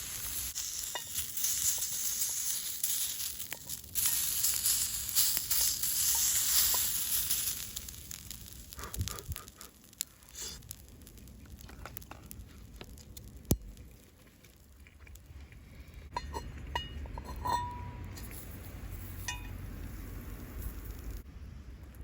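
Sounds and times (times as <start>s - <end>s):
clinks of metal and glass tableware: 16.1s - 19.6s.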